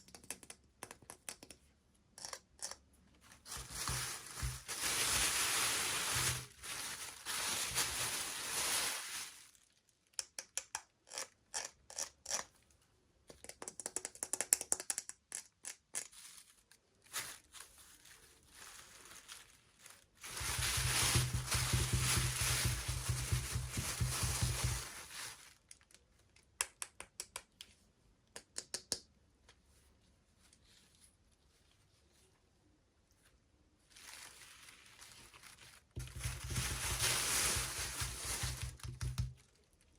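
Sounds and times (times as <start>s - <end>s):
packaging rustling: 3.4s - 9.6s, 17.1s - 25.6s, 34.0s - 39.2s.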